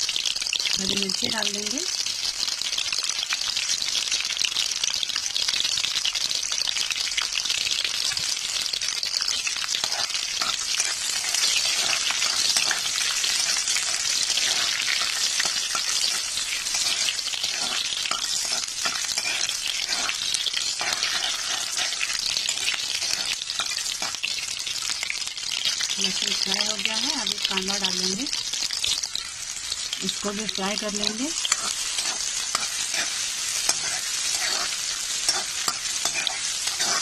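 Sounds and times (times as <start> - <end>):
garlic sizzling in hot oil: 0.0 - 37.0
spoon scraping a pan: 9.7 - 24.3, 30.7 - 37.0.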